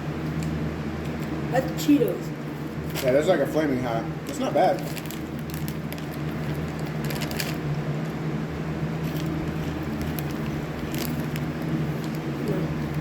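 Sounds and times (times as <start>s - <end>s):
steady low hum: 0.0s - 13.0s
tortilla chips being chewed: 4.3s - 8.2s, 9.0s - 13.0s.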